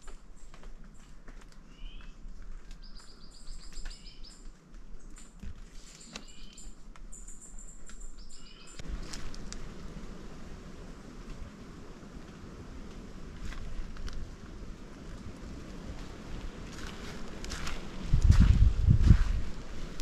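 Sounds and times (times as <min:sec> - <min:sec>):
steady low rumble: 0:08.8 - 0:20.0.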